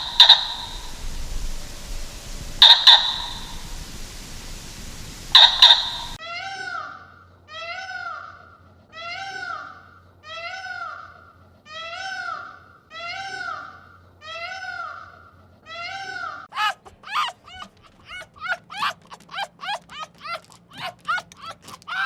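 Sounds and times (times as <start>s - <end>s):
short sharp high animal calls: 0.0s - 6.2s.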